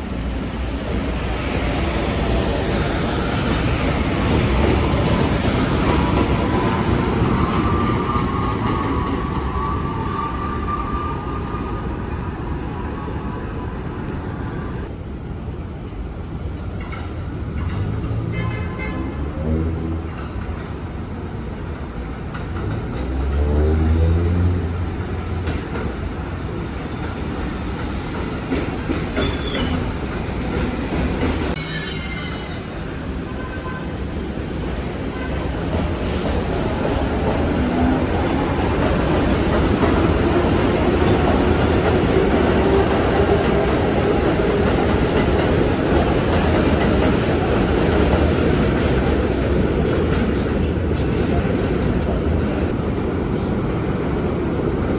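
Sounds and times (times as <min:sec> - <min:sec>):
subway train rumbling on rails: 0:00.0 - 0:54.9
high wheel squeals: 0:06.7 - 0:11.6, 0:31.6 - 0:33.7.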